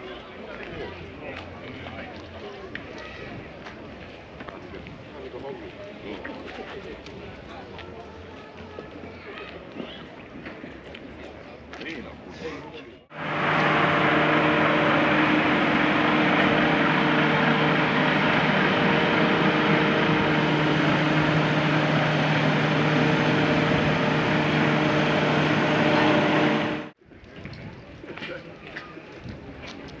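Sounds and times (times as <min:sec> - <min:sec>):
machine droning: 0:13.1 - 0:27.0.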